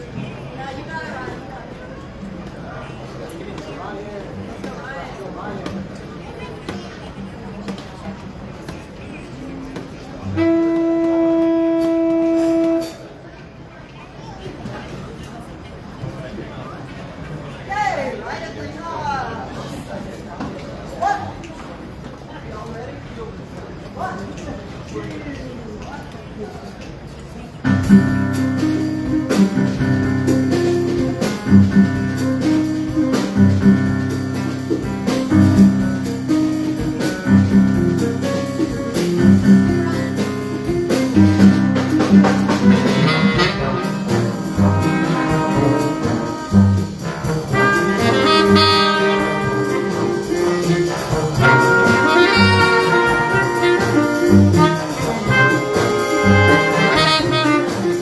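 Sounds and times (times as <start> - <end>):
jazz big band playing: 10.0 - 13.3, 27.7 - 58.0.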